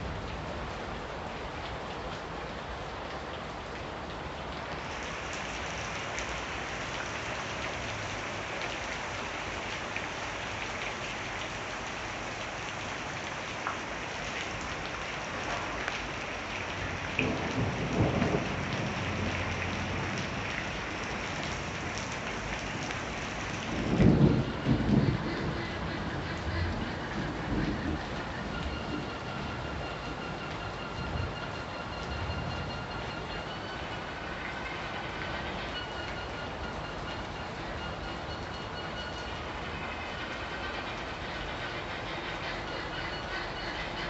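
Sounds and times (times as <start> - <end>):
heavy rain: 0.0 - 44.0
thunder rumbling: 17.0 - 33.2.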